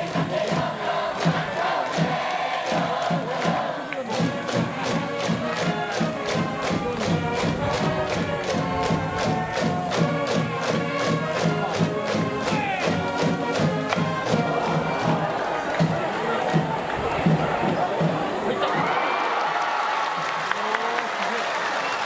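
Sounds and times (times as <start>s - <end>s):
steady drum beat: 0.0s - 18.9s
crowd chanting: 0.0s - 22.0s
band playing melody: 3.7s - 18.7s.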